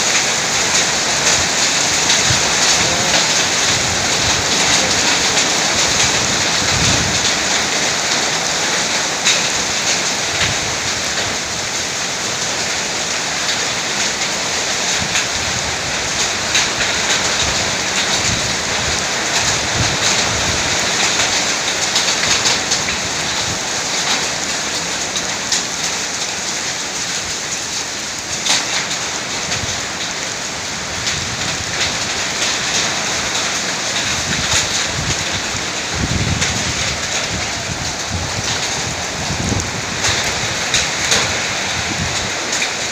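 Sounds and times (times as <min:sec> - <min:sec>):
heavy rain pouring: 0:00.0 - 0:42.9
sharp ticks of raindrops: 0:00.0 - 0:42.9
low rumbles: 0:01.1 - 0:07.4.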